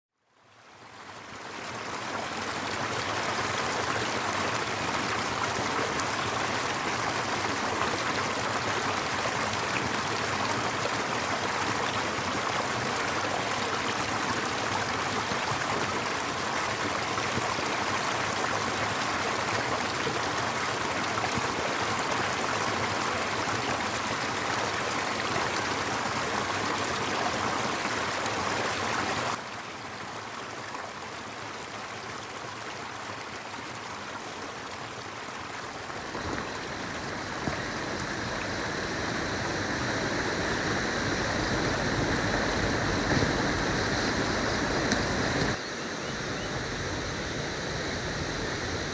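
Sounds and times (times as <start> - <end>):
river rushing over rocks: 35.4 - 48.9.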